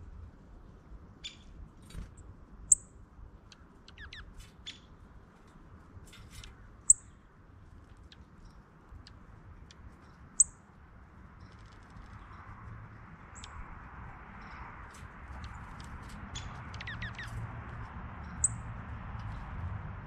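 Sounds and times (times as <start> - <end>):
faint bird chirps: 2.7 - 4.9, 15.4 - 17.4.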